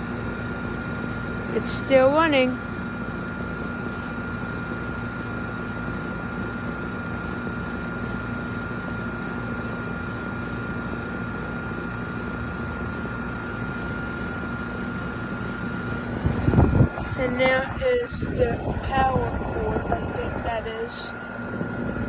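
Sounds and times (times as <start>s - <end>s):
air conditioner unit humming: 0.0s - 22.0s
steady high whine: 11.2s - 22.0s.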